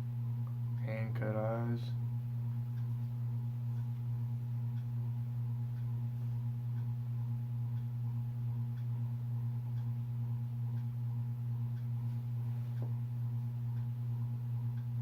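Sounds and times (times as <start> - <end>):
steady low hum: 0.0 - 15.0
faint ticks: 8.7 - 9.0, 9.7 - 10.0.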